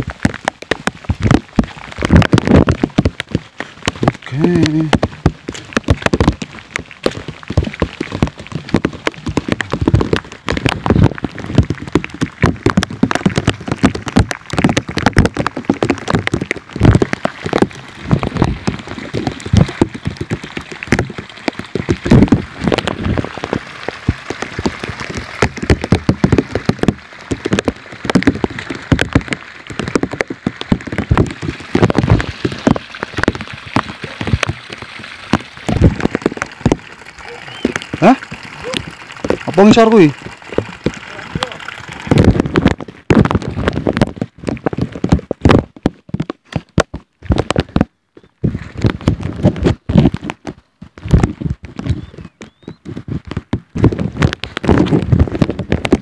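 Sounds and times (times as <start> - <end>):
raindrops tapping near microphone: 0.0 - 56.0
heavy rain hiss: 4.2 - 5.0, 37.1 - 42.2.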